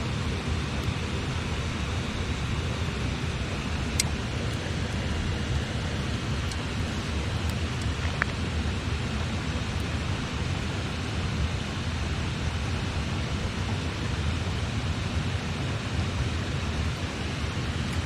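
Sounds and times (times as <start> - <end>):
river water rushing: 0.0 - 18.0
campfire tick: 1.6 - 8.6.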